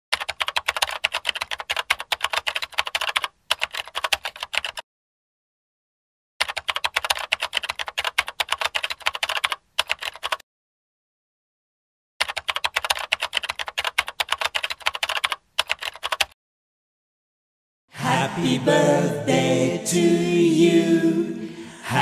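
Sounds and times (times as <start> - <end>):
rapid keyboard typing: 0.1 - 4.8, 6.4 - 10.4, 12.2 - 16.4.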